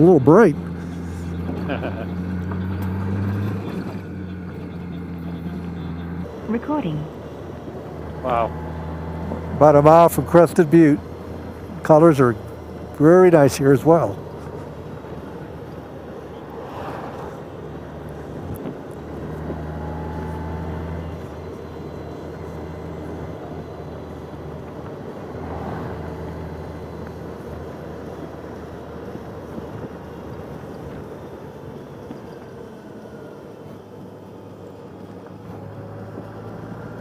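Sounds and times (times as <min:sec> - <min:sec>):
motorcycle engine running: 0:00.0 - 0:16.6
wind and road noise: 0:00.0 - 0:37.0.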